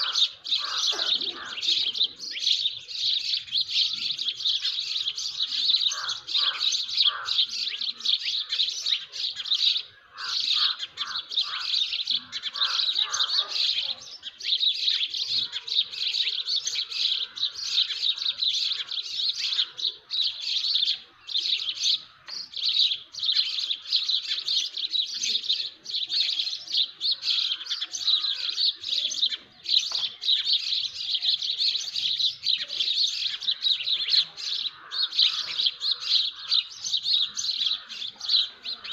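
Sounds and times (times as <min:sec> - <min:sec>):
lower bird calls: 0:00.0 - 0:25.8
small birds chirping: 0:00.0 - 0:38.9.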